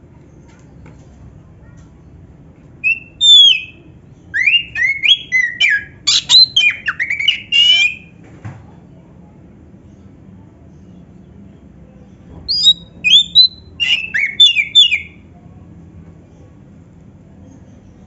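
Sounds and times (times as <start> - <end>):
bird whistling and chirping: 2.8 - 8.1, 12.5 - 15.2.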